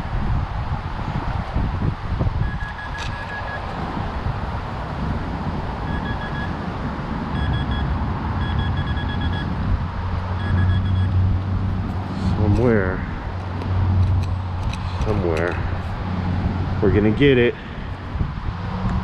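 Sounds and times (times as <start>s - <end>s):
wind rumble on microphone: 0.0s - 19.0s
metal detector short beeps: 2.4s - 3.6s, 5.9s - 6.5s, 7.4s - 9.5s, 10.4s - 11.1s.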